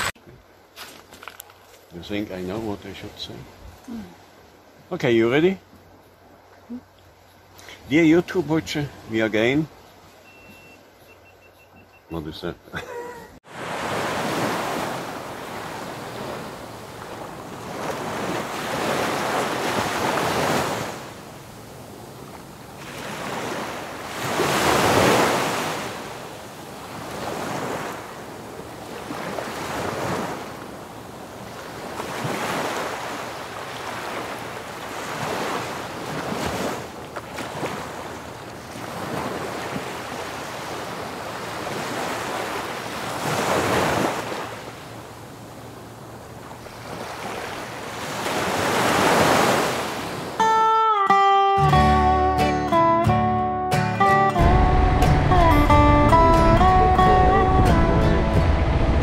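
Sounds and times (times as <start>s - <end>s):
waves breaking on a beach: 0.0s - 11.4s, 12.0s - 50.8s
wind buffeting microphone: 54.5s - 59.0s.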